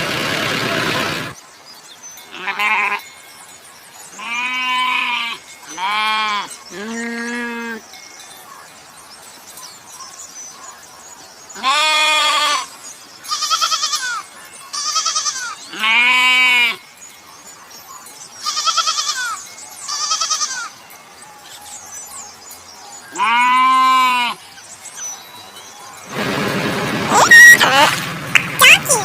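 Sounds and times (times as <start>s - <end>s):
goats bleating: 4.2s - 7.8s, 11.6s - 12.7s, 14.8s - 16.8s, 18.4s - 20.7s, 23.1s - 24.4s.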